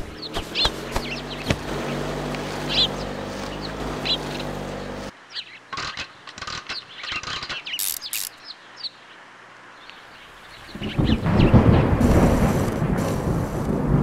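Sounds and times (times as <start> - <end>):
small birds chirping: 0.0 - 11.9
irregular clicks and scrapes: 5.7 - 8.4.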